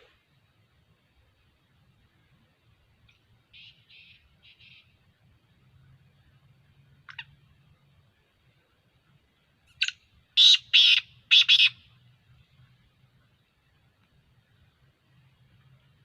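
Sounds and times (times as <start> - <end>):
francolin calling: 3.1 - 5.0, 7.0 - 7.4, 9.7 - 11.9.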